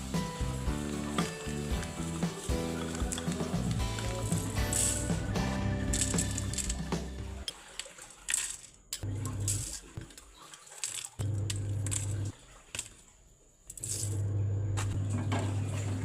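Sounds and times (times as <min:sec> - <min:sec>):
hard objects clinking: 0:00.8 - 0:07.6.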